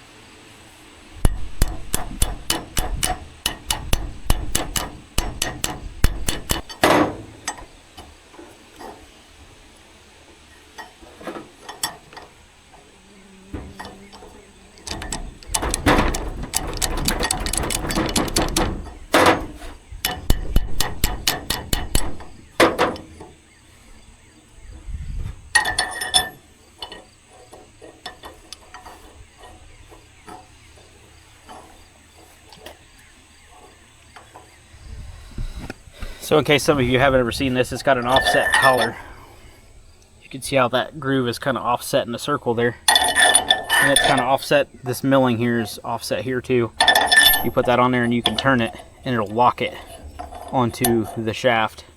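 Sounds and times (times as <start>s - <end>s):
hammer blows on metal: 1.2s - 7.7s, 13.2s - 23.4s
ringing metallic clink: 46.8s - 48.6s.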